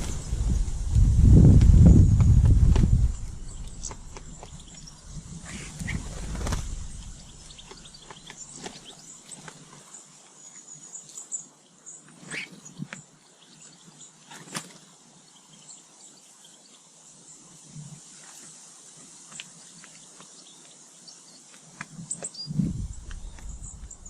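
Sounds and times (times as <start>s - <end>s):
birds chirping faintly: 0.0s - 24.0s.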